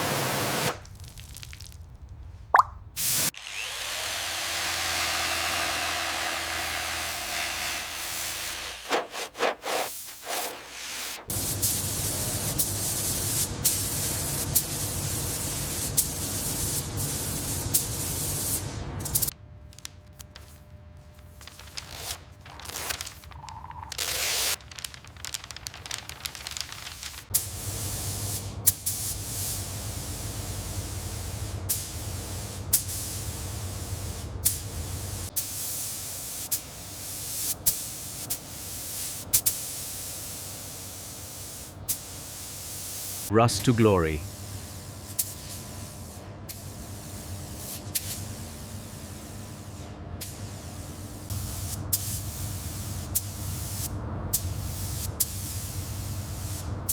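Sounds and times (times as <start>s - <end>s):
hissing spray: 3.0s - 3.4s, 6.1s - 18.5s.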